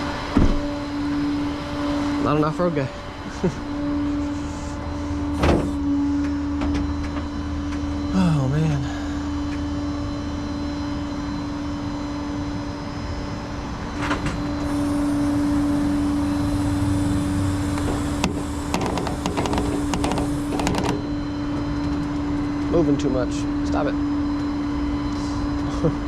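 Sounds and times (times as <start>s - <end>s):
motor humming: 0.0s - 11.8s, 14.3s - 22.7s.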